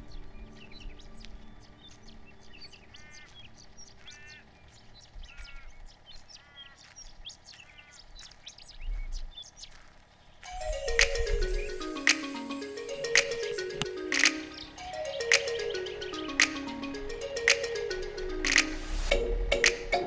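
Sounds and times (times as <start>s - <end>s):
music: 0.0s - 3.0s, 10.5s - 20.0s.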